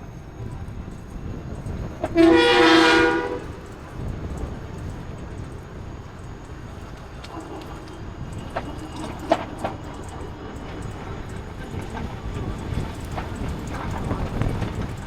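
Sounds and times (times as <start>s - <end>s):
road and engine rumble: 0.0s - 15.0s
vehicle horn blast: 2.1s - 3.6s.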